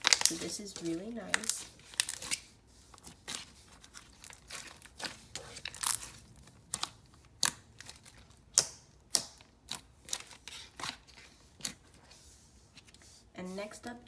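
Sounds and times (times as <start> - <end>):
slime being squished by hand: 0.0 - 12.0
sharp clicks and pops of slime: 8.5 - 9.9.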